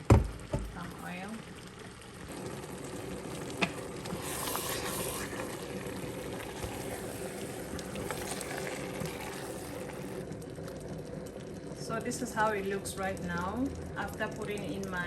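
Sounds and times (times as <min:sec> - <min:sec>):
pot bubbling and sizzling: 0:00.0 - 0:15.0.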